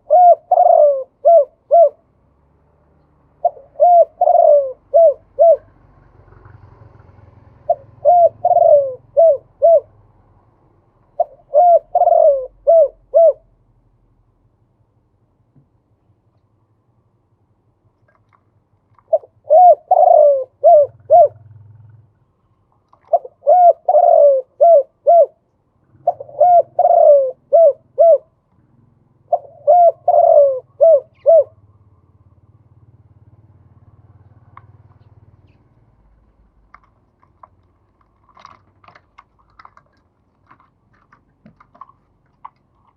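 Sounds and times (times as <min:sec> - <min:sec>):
dove cooing: 0:00.0 - 0:02.1, 0:03.4 - 0:05.9, 0:07.6 - 0:10.0, 0:11.1 - 0:13.6, 0:19.0 - 0:22.0, 0:22.9 - 0:31.8
faint scattered clicks: 0:17.9 - 0:19.2, 0:22.5 - 0:23.2, 0:36.6 - 0:42.9.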